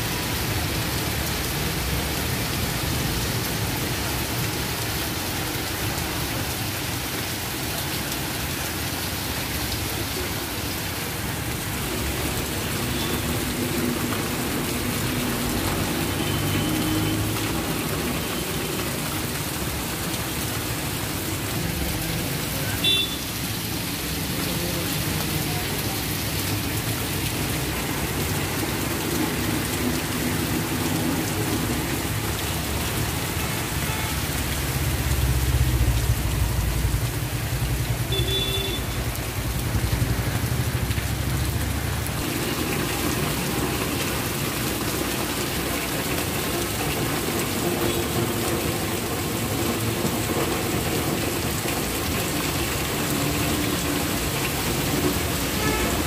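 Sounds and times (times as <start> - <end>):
heavy rain on road and roofs: 0.0 - 56.0.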